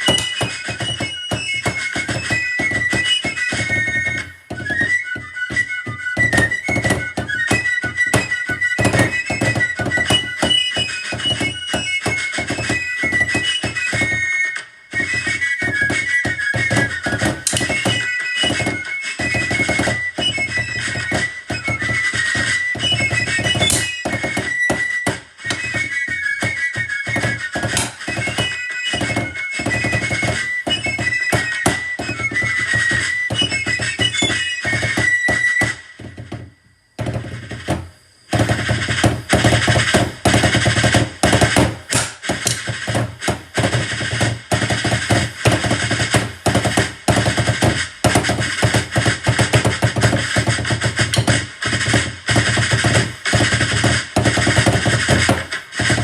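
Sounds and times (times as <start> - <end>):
drum kit playing: 27.1 - 36.1, 37.0 - 56.0.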